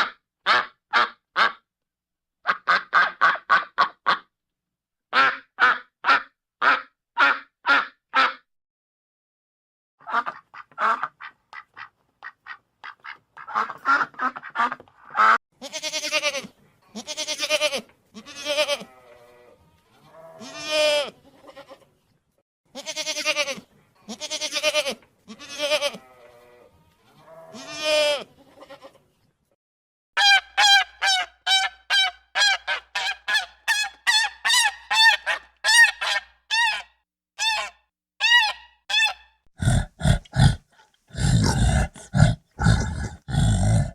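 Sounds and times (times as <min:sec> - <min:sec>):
geese honking: 0:30.2 - 0:36.8.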